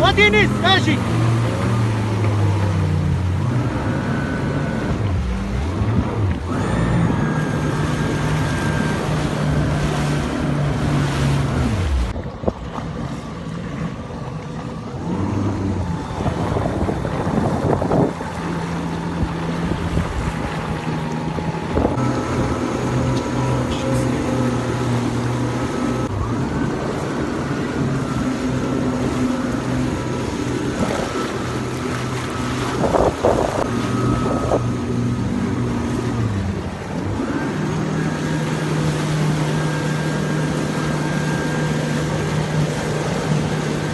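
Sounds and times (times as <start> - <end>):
jet ski engine running: 0.0 - 43.9
wind on microphone: 15.2 - 22.6, 30.1 - 36.8.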